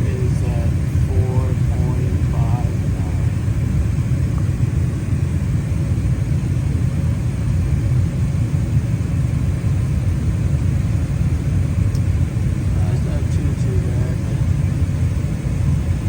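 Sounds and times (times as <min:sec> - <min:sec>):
gas furnace low rumble: 0:00.0 - 0:16.0.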